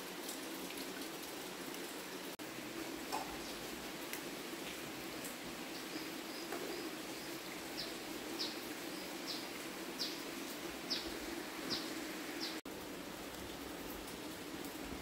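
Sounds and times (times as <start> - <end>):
bird chirping: 10.9 - 12.6.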